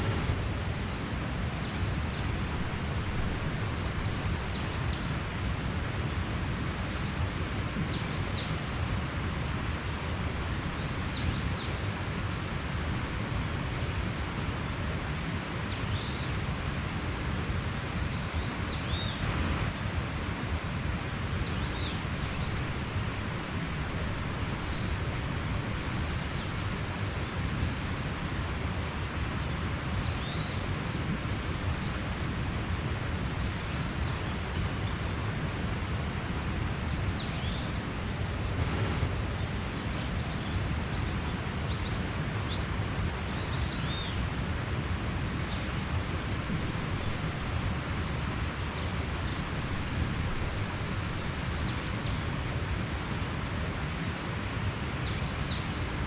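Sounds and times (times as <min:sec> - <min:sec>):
mountain stream rushing: 0:00.0 - 0:56.0.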